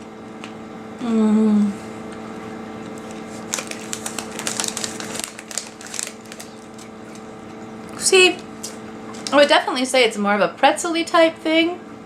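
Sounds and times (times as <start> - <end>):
biscuit crunching: 2.2 - 7.6.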